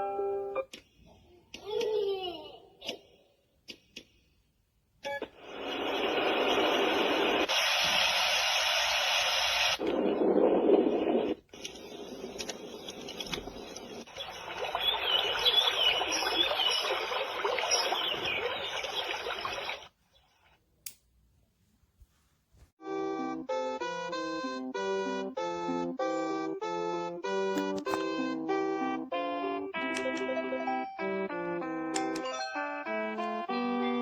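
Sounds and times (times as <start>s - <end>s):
white noise machine hiss: 5.4s - 17.1s
faint chirps: 11.8s - 20.5s.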